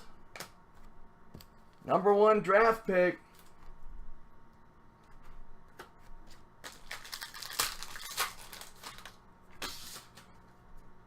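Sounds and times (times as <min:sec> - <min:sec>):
trading cards rustling: 0:06.2 - 0:10.3.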